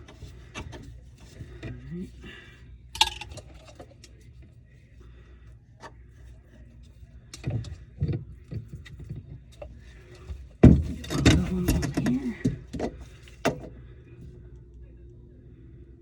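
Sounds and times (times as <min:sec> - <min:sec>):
low steady hum: 0:00.0 - 0:16.0
tools clicking and knocking: 0:07.3 - 0:13.7.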